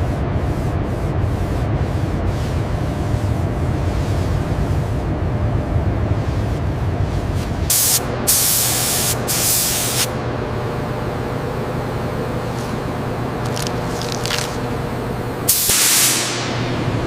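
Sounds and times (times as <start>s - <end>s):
steady low hum: 0.0s - 17.0s
spraying hiss: 7.7s - 10.1s, 15.5s - 16.6s.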